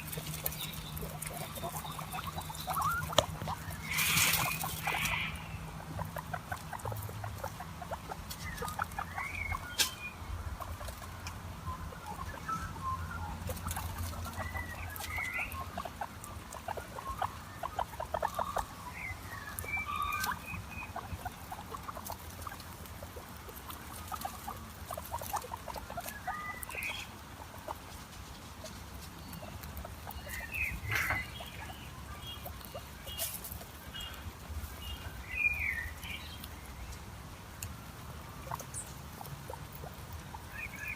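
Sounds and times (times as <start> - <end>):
guinea pigs squeaking: 0.0 - 40.9.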